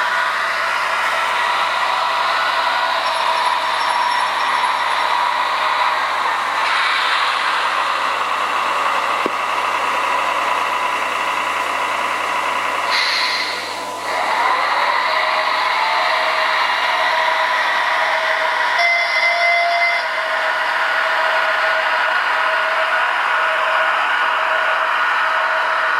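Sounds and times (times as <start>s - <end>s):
electric locomotive hum and whir: 0.0s - 25.9s.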